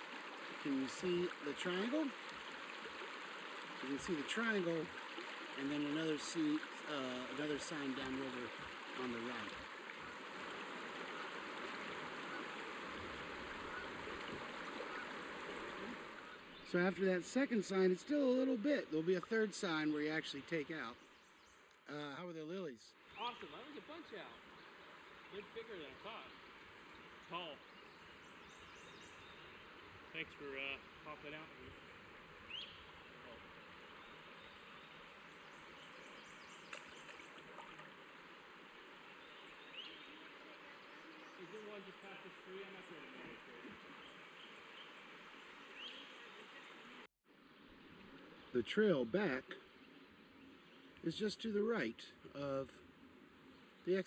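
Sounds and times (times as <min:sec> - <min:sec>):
river water running over rocks: 0:00.0 - 0:20.6, 0:29.5 - 0:51.2.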